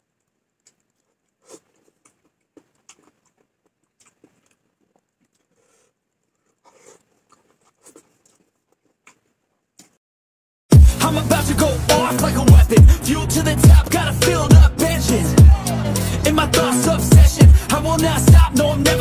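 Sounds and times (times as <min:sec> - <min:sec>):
faint clicks and taps: 0:00.2 - 0:05.5.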